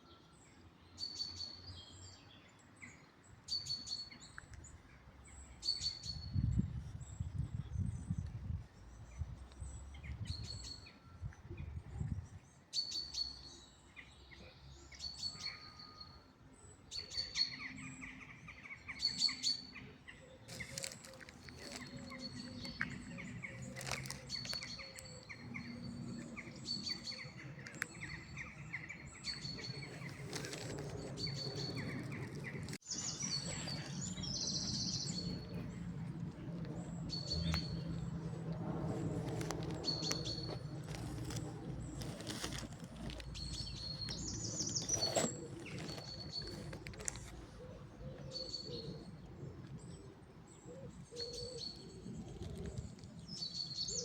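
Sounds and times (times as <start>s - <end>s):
bird calls: 17.0s - 38.1s, 50.6s - 54.0s.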